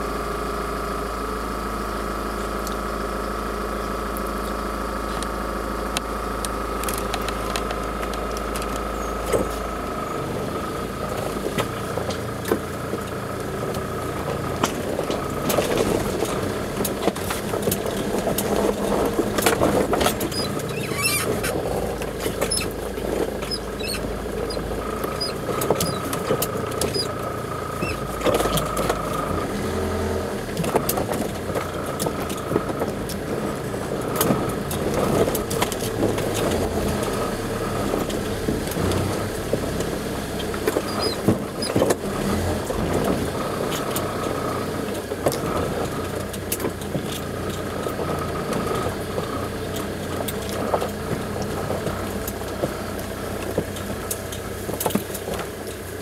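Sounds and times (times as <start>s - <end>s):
vehicle engine running: 0.0s - 56.0s
knocks and rattles: 11.2s - 29.3s.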